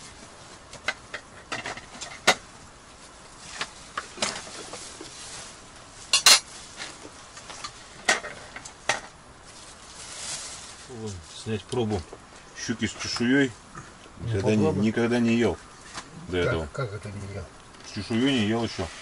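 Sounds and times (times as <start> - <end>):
metal utensils scraping frying pan: 6.1 - 6.5.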